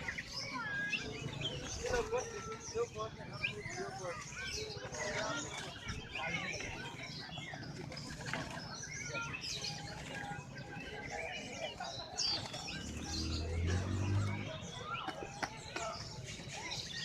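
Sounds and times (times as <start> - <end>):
songbirds chirping and whistling: 0.0 - 17.0
loud rising bird chirp: 12.2 - 15.0.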